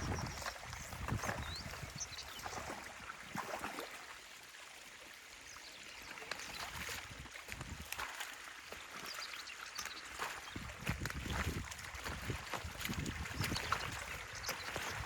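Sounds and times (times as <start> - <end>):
short water splashes: 0.0 - 15.0
stream water flowing: 0.0 - 15.0.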